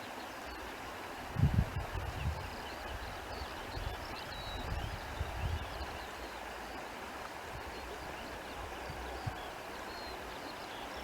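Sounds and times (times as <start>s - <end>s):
wind buffeting microphone: 1.4s - 2.5s.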